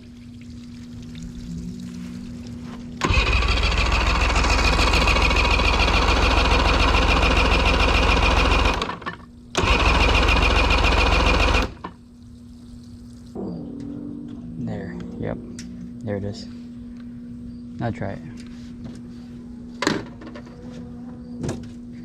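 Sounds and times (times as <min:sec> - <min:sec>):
outboard motor electric starter cranking: 0:03.0 - 0:12.0.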